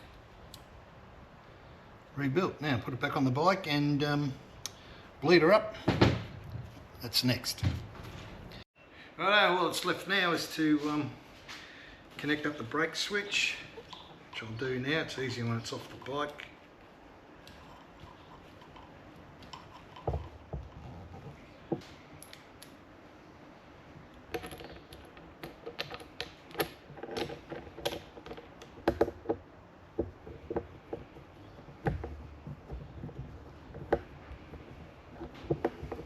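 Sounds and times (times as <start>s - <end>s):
metal parts and tools clinking: 24.3s - 29.2s.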